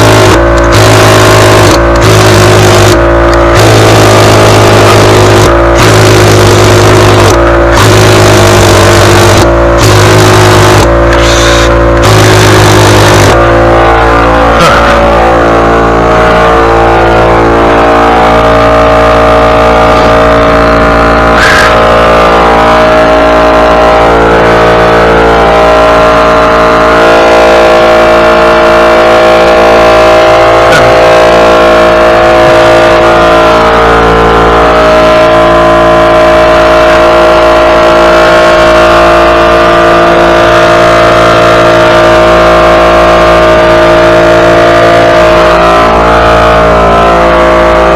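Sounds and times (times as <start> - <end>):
small gasoline engine running: 0.0 - 22.3.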